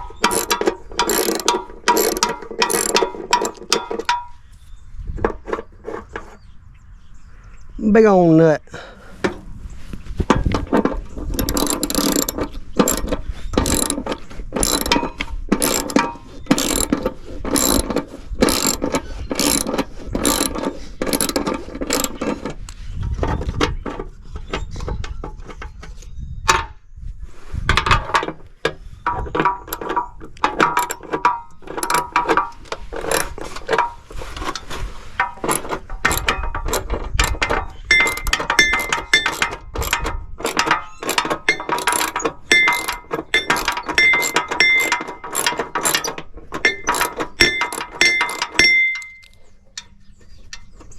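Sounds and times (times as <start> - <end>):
ratchet wrench clicking: 0.0 - 4.3, 11.3 - 22.5, 29.6 - 33.4, 35.4 - 49.4.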